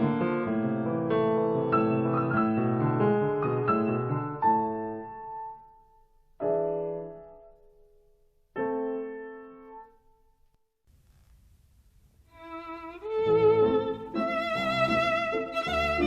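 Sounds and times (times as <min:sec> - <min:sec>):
slow piano music: 0:00.0 - 0:10.4.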